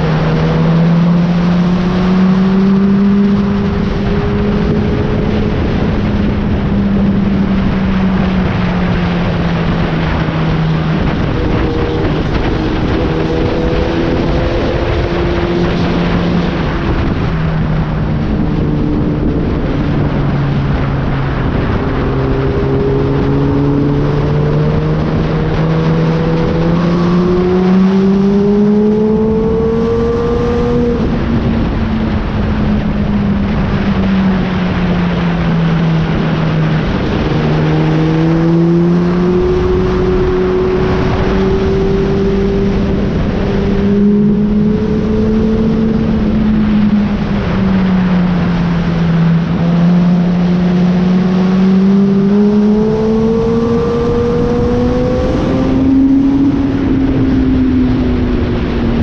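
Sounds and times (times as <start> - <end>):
motorcycle engine running: 0.0 - 59.0
wind and road rush: 0.0 - 59.0.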